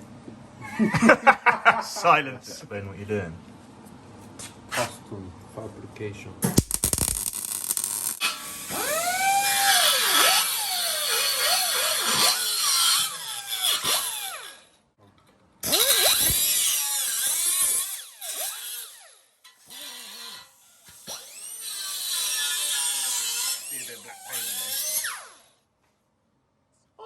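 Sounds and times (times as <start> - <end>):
power tool whining on metal: 6.8 - 14.8, 15.6 - 25.6.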